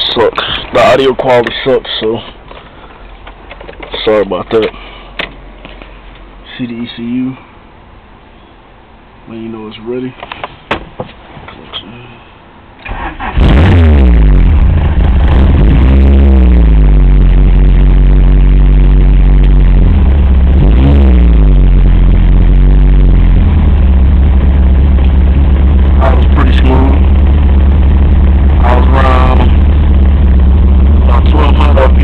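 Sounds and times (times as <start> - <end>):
car engine running and revving: 13.3 - 32.0.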